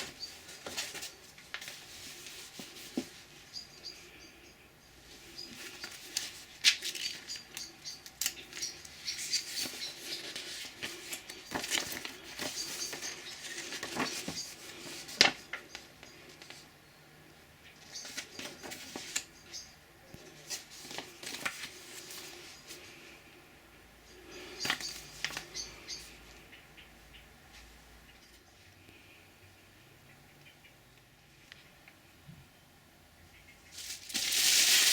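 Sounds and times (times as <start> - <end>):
packaging rustling: 0.0 - 3.2, 9.2 - 15.8, 20.5 - 22.8, 33.8 - 34.9
parts being handled: 5.2 - 16.6.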